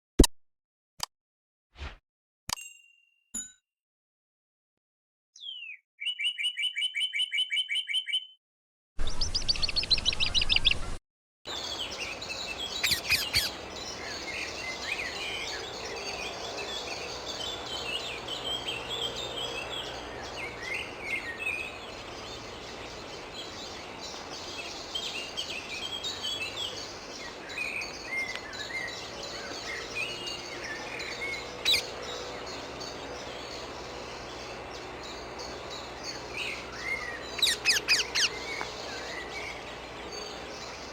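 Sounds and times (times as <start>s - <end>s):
outdoor background noise: 9.0s - 40.9s
parakeets chirping and squawking: 10.5s - 40.9s.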